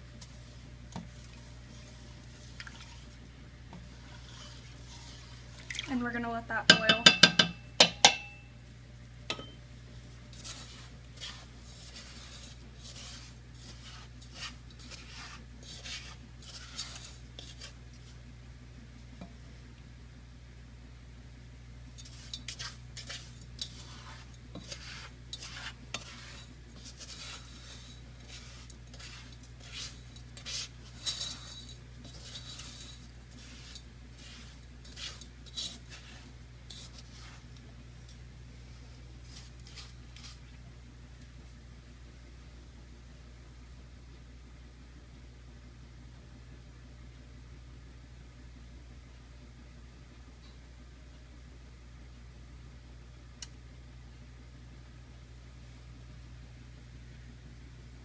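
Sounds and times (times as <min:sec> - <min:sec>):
utensil scraping in a pan: 0:00.0 - 0:08.5, 0:09.3 - 0:18.4, 0:21.8 - 0:40.7.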